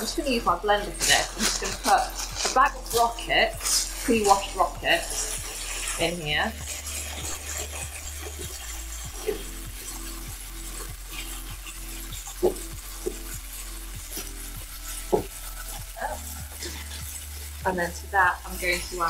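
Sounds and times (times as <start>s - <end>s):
plastic bag rustling: 0.0s - 13.3s
fish sizzling in hot oil: 0.0s - 19.0s
oil popping: 0.0s - 19.0s.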